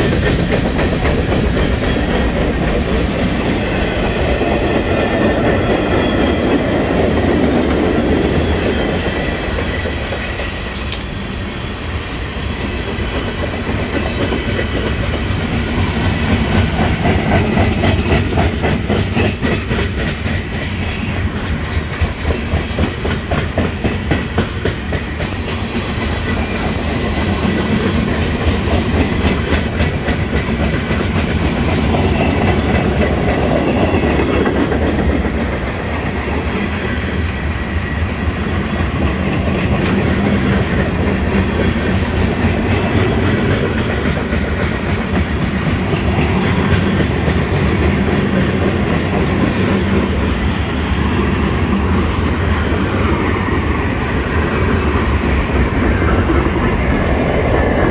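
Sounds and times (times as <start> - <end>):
wheels clacking over rail joints: 0.0 - 11.2, 13.0 - 36.8
freight train wheels rumbling: 0.0 - 57.9.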